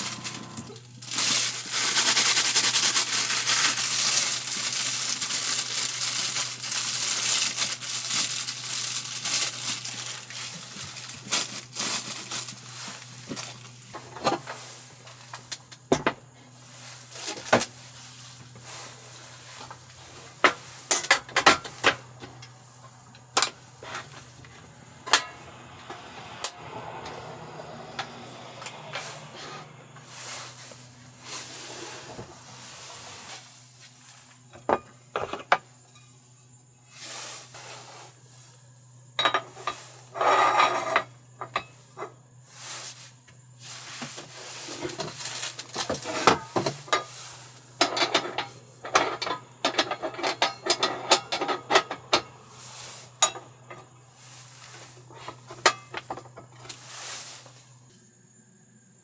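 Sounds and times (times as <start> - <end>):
utensils and dishes clinking: 0.0 - 14.6, 20.4 - 26.7, 44.7 - 47.2, 47.8 - 52.3, 53.1 - 53.9, 55.1 - 56.8
rustling and scraping objects: 0.0 - 58.2.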